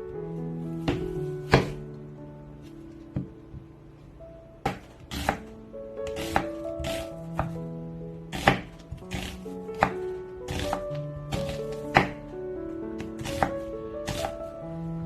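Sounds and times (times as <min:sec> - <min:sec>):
background music: 0:00.0 - 0:15.0
knife chopping on cutting board: 0:00.8 - 0:01.8, 0:04.6 - 0:05.4, 0:06.1 - 0:07.6, 0:08.3 - 0:12.2, 0:13.2 - 0:14.4.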